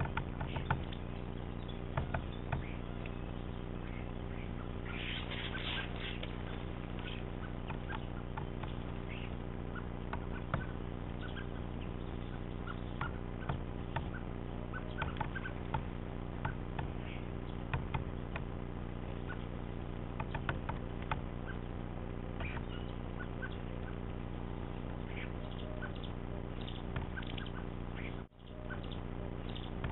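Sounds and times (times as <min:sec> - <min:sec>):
woodpecker tapping on wood: 0:00.0 - 0:01.2, 0:01.8 - 0:03.2, 0:07.0 - 0:08.9, 0:10.1 - 0:11.4, 0:12.7 - 0:14.2, 0:14.8 - 0:17.0, 0:17.7 - 0:18.5, 0:20.2 - 0:21.6, 0:26.7 - 0:27.5
steady low hum: 0:00.0 - 0:29.9.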